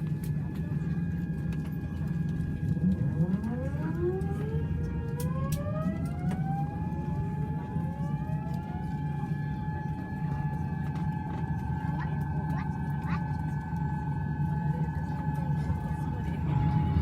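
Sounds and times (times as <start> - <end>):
jet engine whine rising: 15.8 - 17.0
low rumble: 16.0 - 17.0
steady high tone: 16.3 - 17.0.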